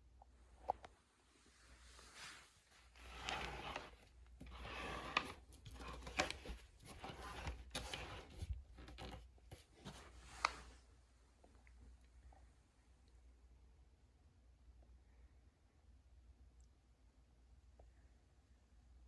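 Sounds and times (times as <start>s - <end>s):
rustling and scraping handling: 2.0s - 10.8s.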